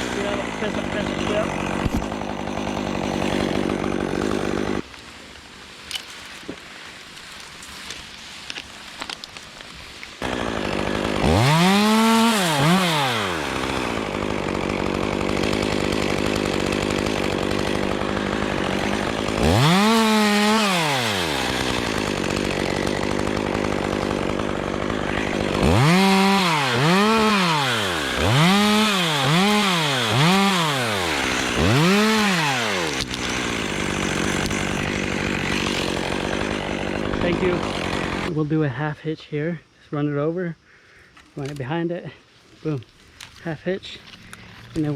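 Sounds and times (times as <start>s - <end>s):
chainsaw idling and revving: 0.0s - 4.9s, 10.2s - 38.4s, 42.6s - 44.9s.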